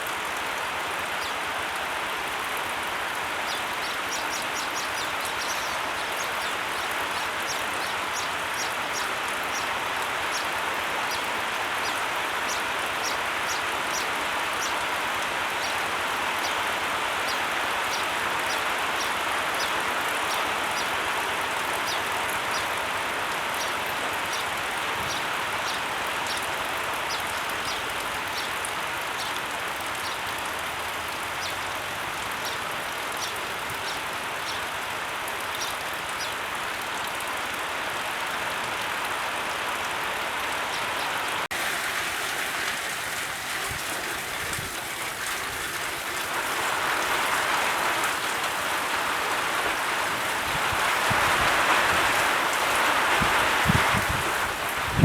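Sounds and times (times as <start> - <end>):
steady hiss of water: 0.0 - 55.0.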